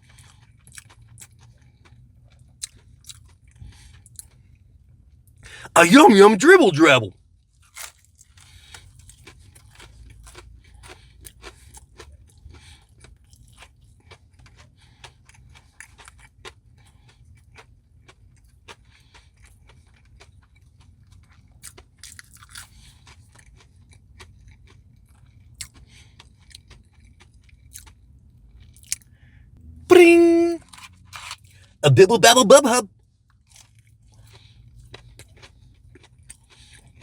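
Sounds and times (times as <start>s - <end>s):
person chewing with crunches: 22.0s - 22.6s.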